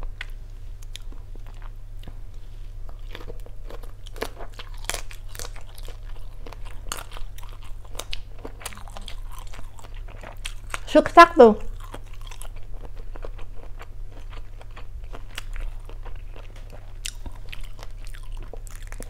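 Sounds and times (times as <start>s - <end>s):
person chewing crunchy shrimp: 0.2s - 10.9s, 11.6s - 19.0s.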